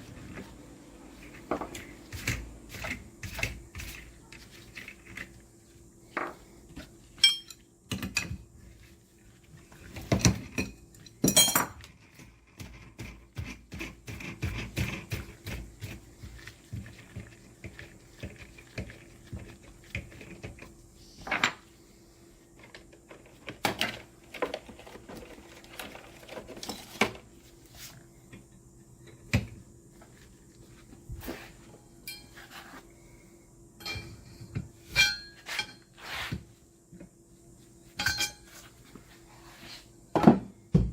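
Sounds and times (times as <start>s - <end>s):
metal tools clinking on workbench: 7.2s - 7.6s, 11.0s - 11.8s, 38.0s - 38.5s.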